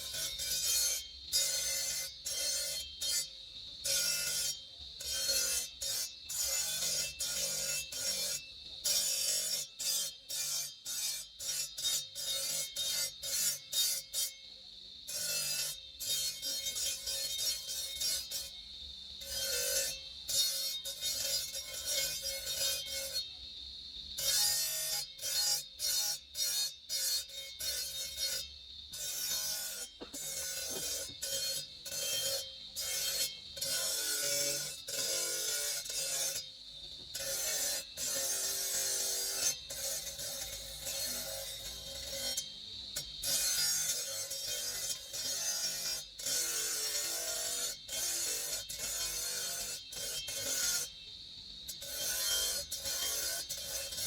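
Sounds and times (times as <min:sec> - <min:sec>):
hand file rasping on marble: 0:24.2 - 0:50.9, 0:51.7 - 0:54.0.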